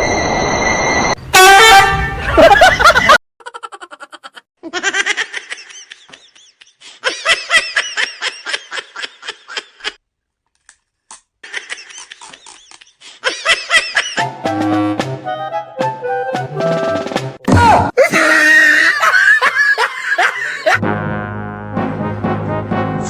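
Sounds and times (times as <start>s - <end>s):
person laughing hard: 2.2s - 10.0s, 11.4s - 14.2s, 18.0s - 20.8s.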